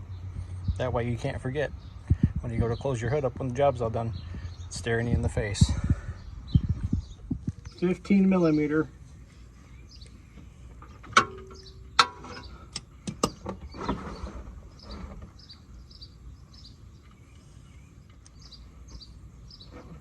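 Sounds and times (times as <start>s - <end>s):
short scraping rustles: 13.5s - 15.5s.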